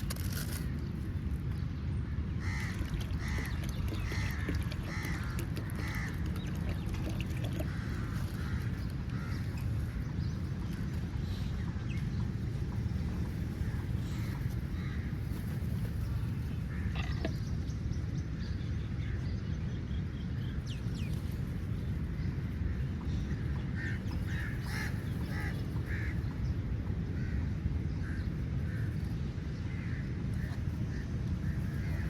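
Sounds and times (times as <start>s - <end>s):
crows cawing: 2.4s - 6.2s, 7.6s - 9.6s, 13.6s - 15.2s, 23.8s - 26.2s.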